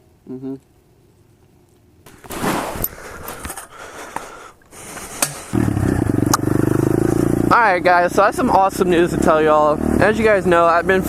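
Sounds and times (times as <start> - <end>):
pit bike engine running: 4.4 - 11.0.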